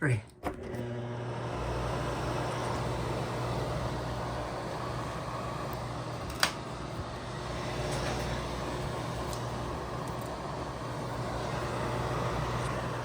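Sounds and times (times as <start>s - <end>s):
exhaust fan humming: 0.6s - 13.0s.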